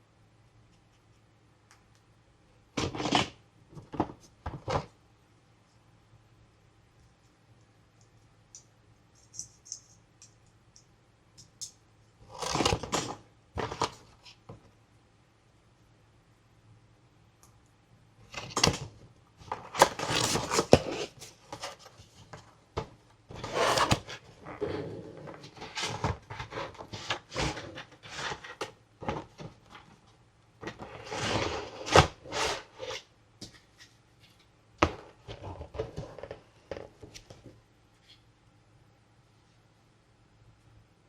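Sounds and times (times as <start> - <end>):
plastic and cardboard packaging rustling: 18.3 - 33.0.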